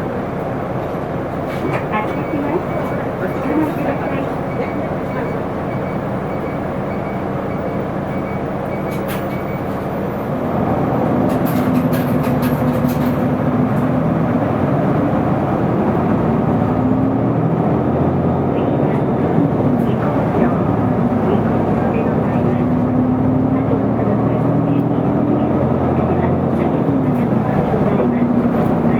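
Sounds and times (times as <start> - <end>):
bus diesel engine and road noise: 0.0 - 28.9
sharp clicks and rattles: 11.1 - 14.0.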